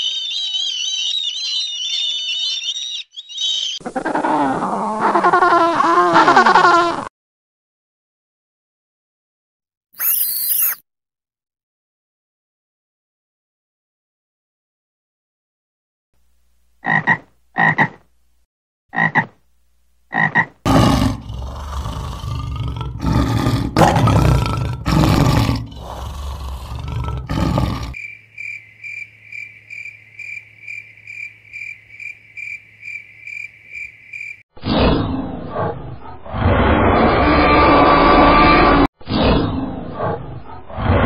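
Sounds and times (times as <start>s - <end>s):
high insect-like buzz: 10.0s - 10.8s
frog croaking: 16.8s - 18.0s, 18.9s - 19.4s, 20.1s - 23.2s
lion roaring: 20.7s - 28.0s.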